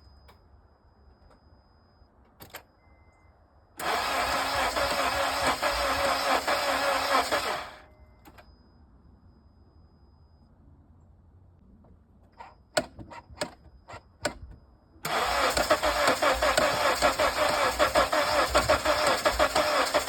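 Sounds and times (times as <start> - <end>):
starter cranking car engine: 3.8 - 7.8, 15.0 - 20.0.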